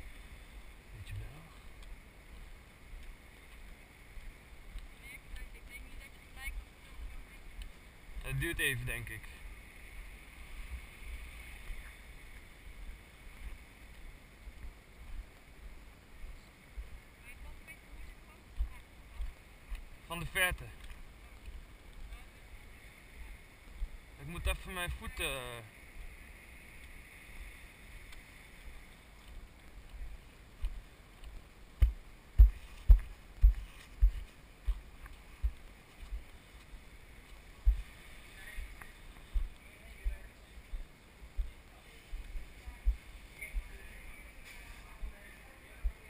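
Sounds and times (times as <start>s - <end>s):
steady hiss: 0.0s - 46.0s
dull low thumps: 30.6s - 36.3s, 37.2s - 37.9s, 42.2s - 43.8s.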